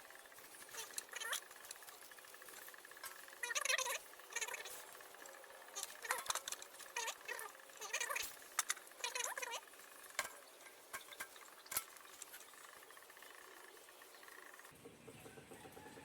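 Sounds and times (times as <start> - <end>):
handling clicks and knocks: 10.1 - 12.5.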